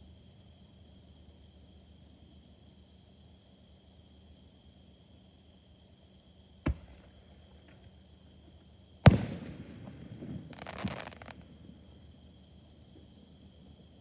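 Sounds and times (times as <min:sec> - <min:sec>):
insects chirring: 0:05.7 - 0:14.0
firework shells bursting: 0:09.1 - 0:12.0
crackling firework burst: 0:09.1 - 0:12.3.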